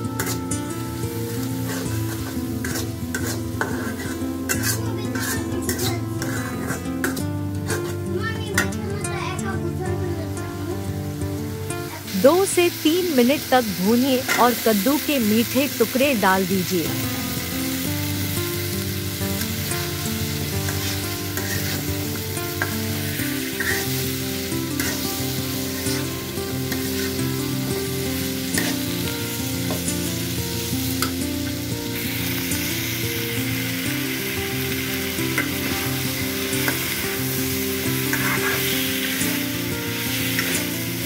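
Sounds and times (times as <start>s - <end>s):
vegetables sizzling in a pan: 0.0s - 41.0s
metal spatula scraping pan: 1.6s - 8.7s, 20.6s - 27.2s, 28.5s - 28.9s, 38.0s - 39.2s.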